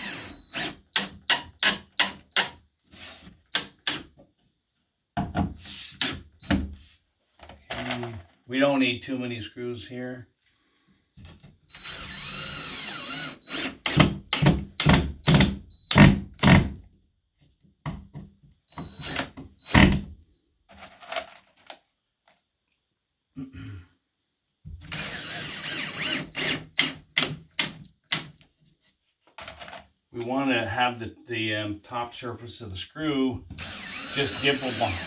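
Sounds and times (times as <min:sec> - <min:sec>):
power drill whining: 0:00.0 - 0:03.3, 0:11.7 - 0:16.6, 0:18.7 - 0:20.0, 0:24.9 - 0:27.3, 0:33.5 - 0:35.0
screws knocking home: 0:12.0 - 0:16.7, 0:33.6 - 0:35.0.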